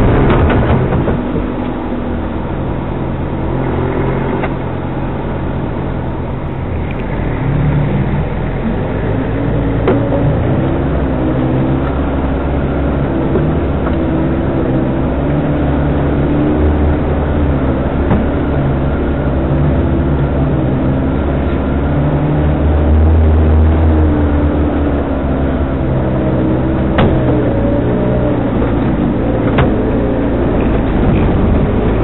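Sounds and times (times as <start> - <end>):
off-road vehicle engine running: 0.0 - 32.0.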